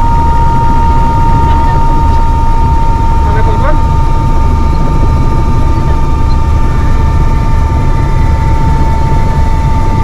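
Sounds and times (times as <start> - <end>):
helicopter rotor drone: 0.0 - 10.0
high turbine whine: 0.0 - 10.0.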